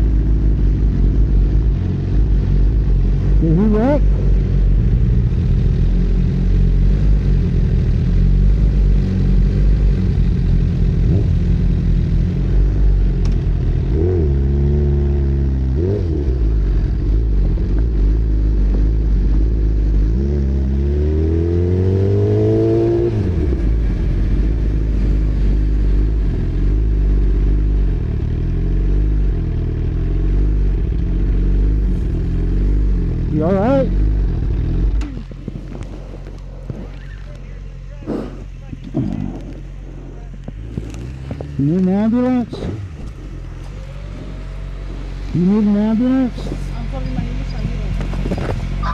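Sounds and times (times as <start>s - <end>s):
vehicle engine revving: 0.0s - 48.9s
wind and road noise rumble: 0.0s - 48.9s.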